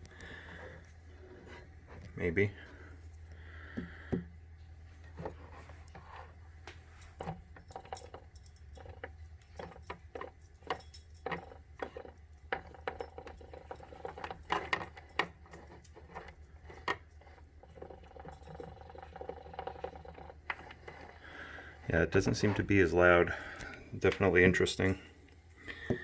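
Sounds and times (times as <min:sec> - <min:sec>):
metallic clicks and rattles: 0:07.0 - 0:21.2.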